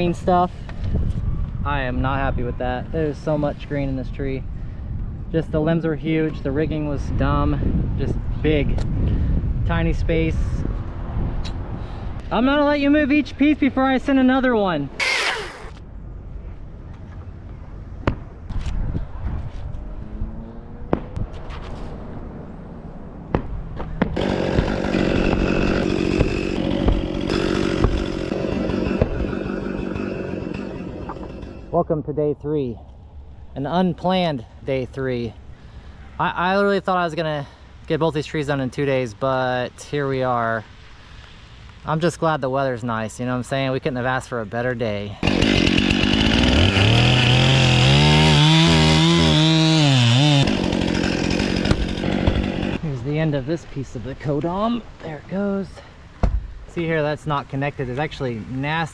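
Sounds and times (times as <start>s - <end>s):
chainsaw running: 15.0s - 15.8s, 24.2s - 31.7s, 45.2s - 52.8s
sharp knocks: 56.2s - 56.5s.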